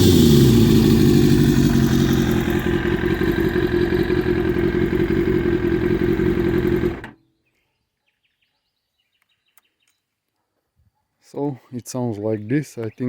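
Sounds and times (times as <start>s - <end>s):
motorcycle engine idling: 0.0s - 7.2s
faint bird chirps: 7.2s - 13.0s.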